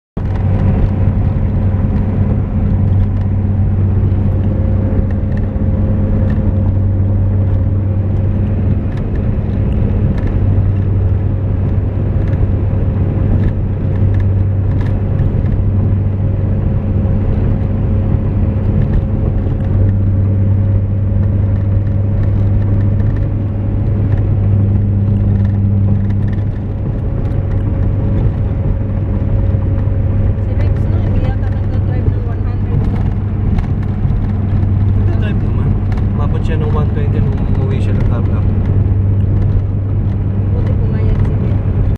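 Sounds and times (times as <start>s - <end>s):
car engine drone: 0.2s - 41.9s
road and tyre noise: 0.2s - 41.9s.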